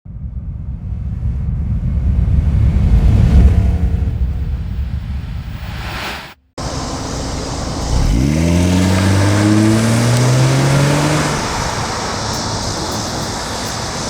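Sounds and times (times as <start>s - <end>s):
car engine accelerating: 0.1s - 14.0s
wind and road noise: 0.1s - 14.0s.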